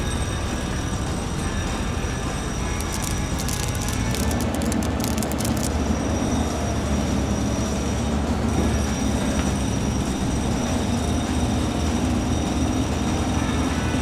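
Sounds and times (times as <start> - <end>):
toy excavator motors whirring: 1.4 - 6.1.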